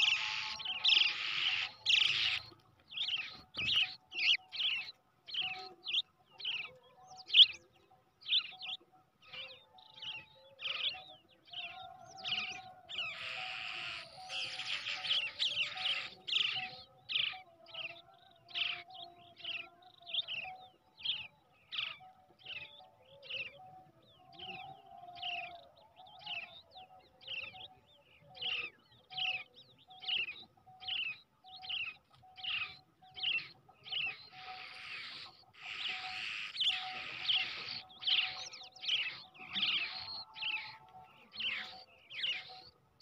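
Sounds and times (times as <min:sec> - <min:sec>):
chicks chirping harshly: 0:00.0 - 0:02.6, 0:12.3 - 0:16.6, 0:33.2 - 0:40.6.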